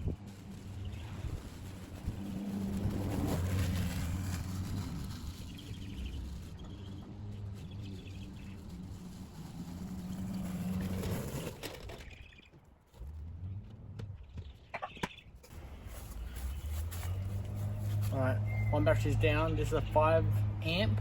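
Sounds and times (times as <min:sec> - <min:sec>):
electric lawn mower humming: 0:00.0 - 0:12.1
faint bird chirps: 0:18.4 - 0:18.8.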